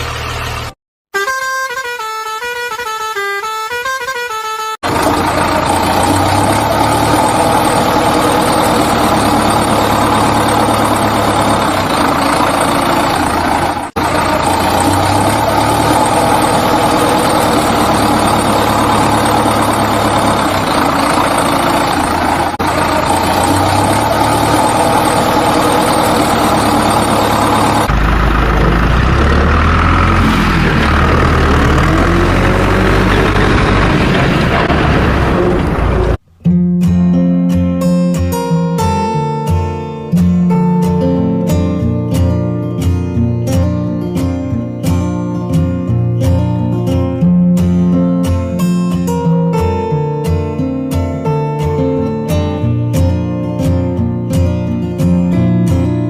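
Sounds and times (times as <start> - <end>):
heavy vehicle engine running: 0.0 - 0.8, 4.8 - 36.2
rough low engine: 0.0 - 0.8, 4.8 - 36.3.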